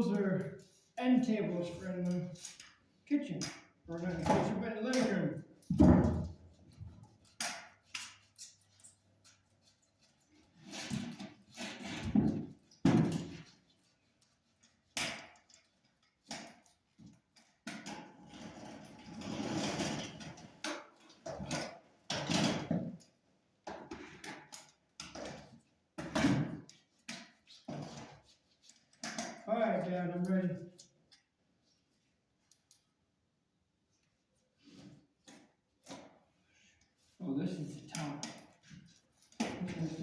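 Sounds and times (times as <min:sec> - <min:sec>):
objects knocking and thudding: 0:03.4 - 0:07.7, 0:10.8 - 0:13.6, 0:23.6 - 0:28.3.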